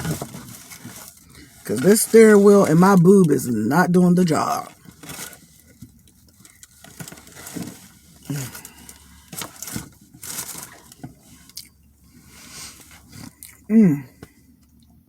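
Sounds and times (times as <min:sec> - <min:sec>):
sandwich wrapper crinkling: 0:00.0 - 0:11.8.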